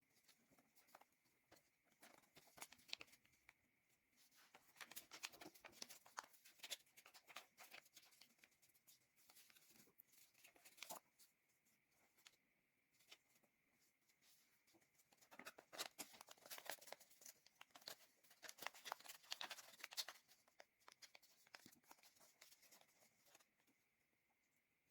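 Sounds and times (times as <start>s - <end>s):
paper crinkling and rustling: 0.2s - 3.5s, 4.2s - 11.2s, 14.2s - 23.6s.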